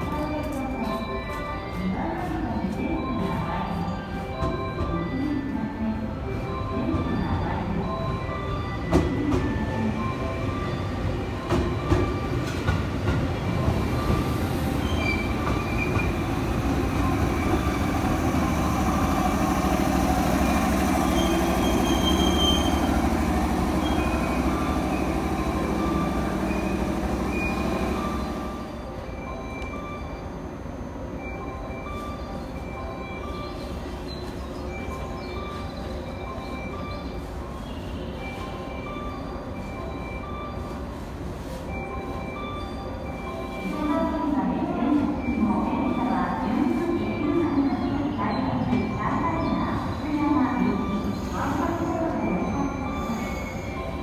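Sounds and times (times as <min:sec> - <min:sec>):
train rumble: 0:00.0 - 0:54.0
train wheels squealing: 0:13.9 - 0:18.9, 0:19.6 - 0:23.1, 0:23.7 - 0:28.7, 0:47.2 - 0:54.0.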